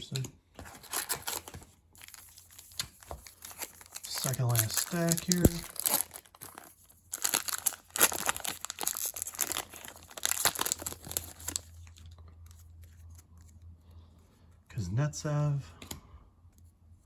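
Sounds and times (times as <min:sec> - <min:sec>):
handling of cards: 0:00.0 - 0:13.7
foil wrappers crinkling and tearing: 0:00.6 - 0:13.2.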